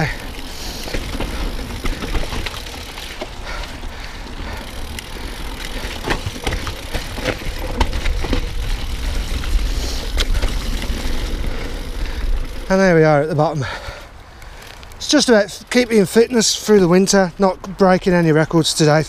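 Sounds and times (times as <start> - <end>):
bike knocks and rattles: 0.0 - 3.8, 4.4 - 12.6
bike tyre noise: 0.0 - 19.0.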